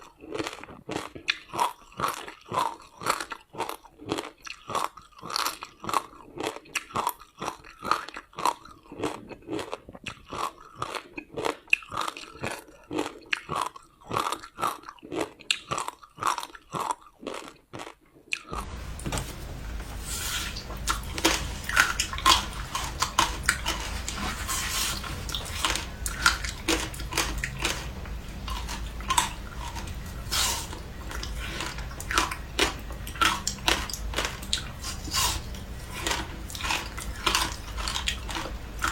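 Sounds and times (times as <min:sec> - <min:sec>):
steady low hum: 0:18.6 - 0:38.9
crisp crunching of ice: 0:20.2 - 0:38.9.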